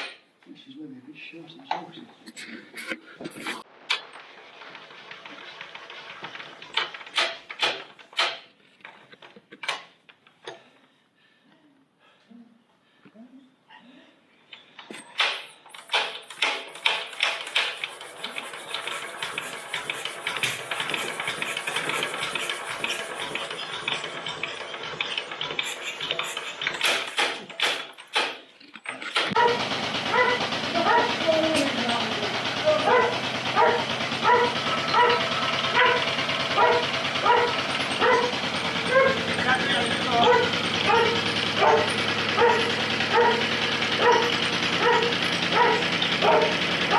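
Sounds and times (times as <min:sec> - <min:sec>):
stationary engine running: 0:04.1 - 0:07.2, 0:16.6 - 0:27.2, 0:29.3 - 0:46.9
dog barking: 0:29.4 - 0:46.9.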